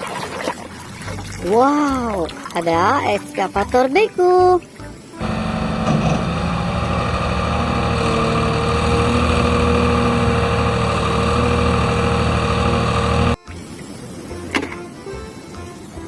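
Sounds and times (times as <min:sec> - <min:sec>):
engine idling: 0:05.2 - 0:13.4.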